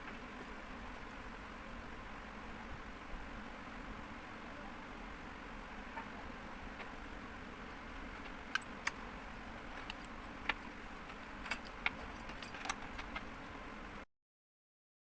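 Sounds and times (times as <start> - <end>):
low background hum: 0.0 - 14.1.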